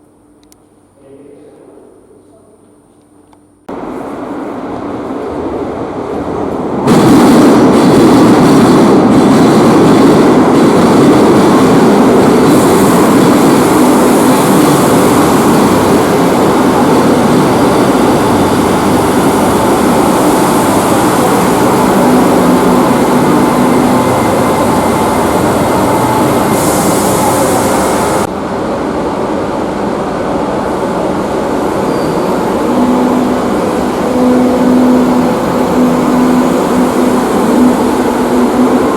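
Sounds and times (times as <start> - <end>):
train wheels rumbling on rail: 3.7 - 38.9.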